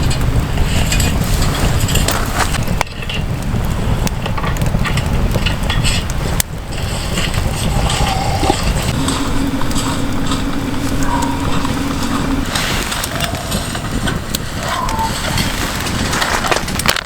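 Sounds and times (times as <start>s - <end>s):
steady low hum: 0.0s - 2.9s, 6.8s - 16.0s
low rumbling noise: 0.0s - 16.8s
wood fire crackling and popping: 0.0s - 17.0s.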